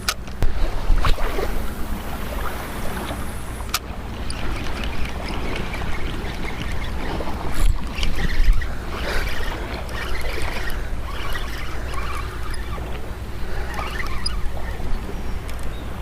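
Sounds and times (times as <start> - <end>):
low engine hum: 0.0 - 16.0
rushing water: 0.0 - 16.0
wind noise: 0.0 - 16.0.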